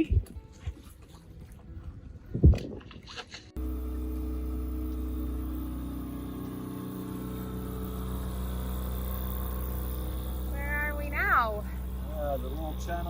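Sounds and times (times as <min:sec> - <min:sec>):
boat engine humming: 0:03.6 - 0:13.0.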